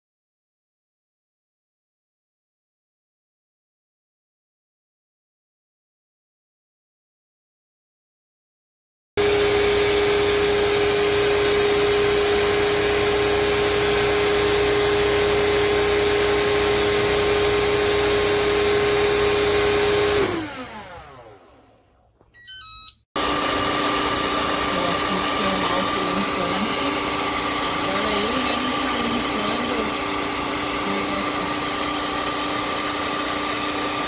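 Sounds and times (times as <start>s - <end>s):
electric motor whining: 9.2s - 34.0s
short electronic beeps: 22.3s - 23.0s.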